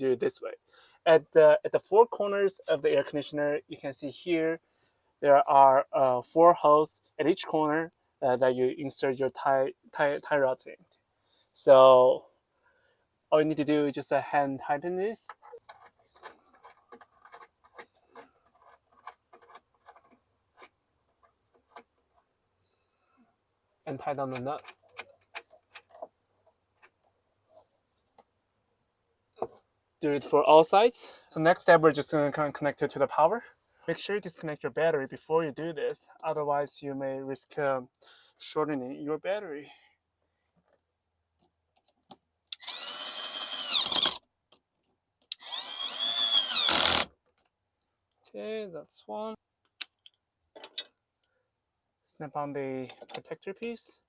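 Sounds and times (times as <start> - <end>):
metallic clicks of nut threading: 15.3 - 22.3
power drill motor whining: 42.6 - 44.2, 45.3 - 47.1.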